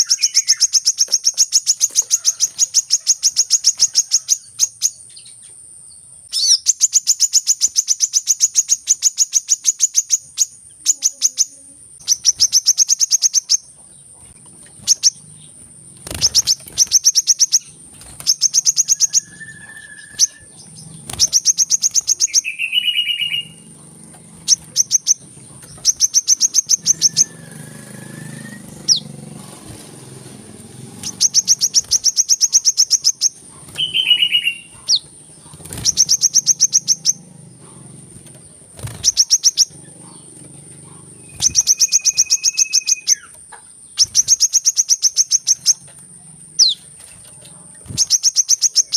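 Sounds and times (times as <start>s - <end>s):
bird chittering trills: 0.0s - 48.9s
low whistled bird notes: 16.2s - 23.7s, 25.8s - 29.1s, 30.9s - 35.0s, 41.2s - 43.3s.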